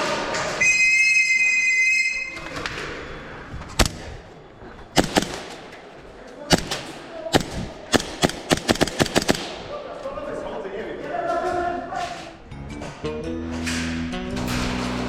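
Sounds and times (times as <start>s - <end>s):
airsoft gun shots: 5.0s - 5.7s, 6.5s - 9.7s.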